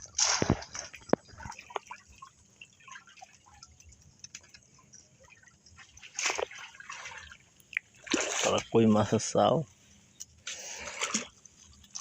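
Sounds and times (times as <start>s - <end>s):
water splash: 0.0s - 3.6s, 5.3s - 8.8s, 10.6s - 12.0s
water dripping and trickling: 0.0s - 12.0s.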